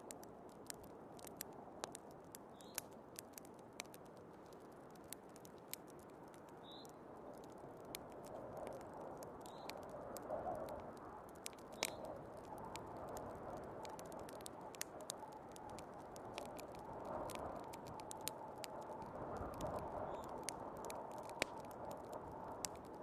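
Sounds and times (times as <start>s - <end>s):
wood fire crackling and popping: 0.0s - 23.0s
snowstorm wind: 7.1s - 23.0s.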